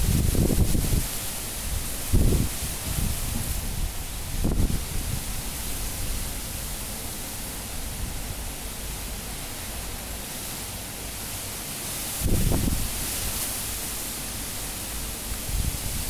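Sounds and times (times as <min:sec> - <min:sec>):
strong wind rushing: 0:00.0 - 0:05.3
wind gust buffeting microphone: 0:00.0 - 0:06.4, 0:12.2 - 0:13.3.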